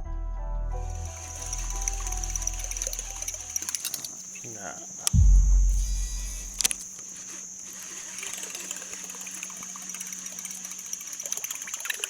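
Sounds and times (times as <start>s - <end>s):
high-pitched drone: 5.2s - 6.8s
low rumble: 5.2s - 6.8s.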